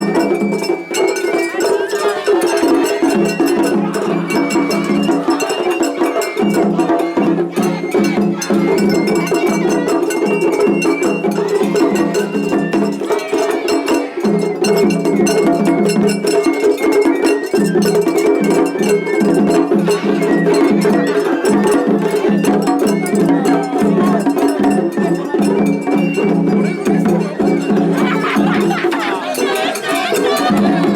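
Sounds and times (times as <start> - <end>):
bamboo flute melody: 0.0 - 30.9
dense drumming: 27.8 - 30.9.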